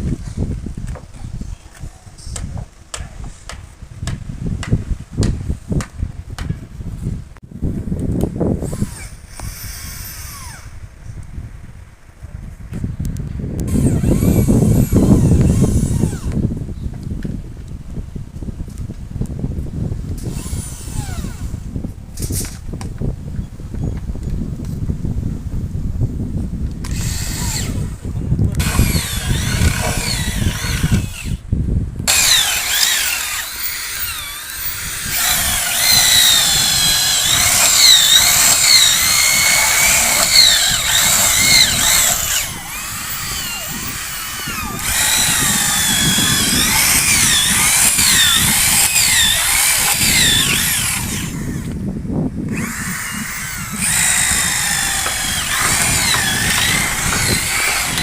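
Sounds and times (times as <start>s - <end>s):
low wind rumble: 0.0s - 58.0s
electric drill whining: 8.6s - 10.8s, 13.7s - 16.4s, 20.2s - 21.6s, 26.8s - 28.0s, 28.6s - 31.4s, 32.1s - 51.8s, 52.5s - 58.0s.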